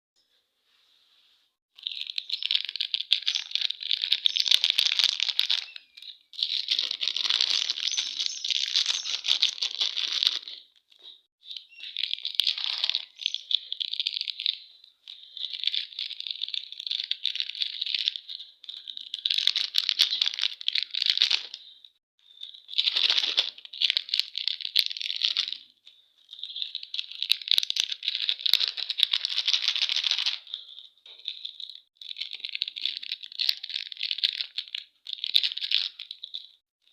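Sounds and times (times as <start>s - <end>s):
plastic wrappers crinkling and tearing: 1.8s - 11.1s, 11.8s - 21.9s, 22.5s - 36.6s.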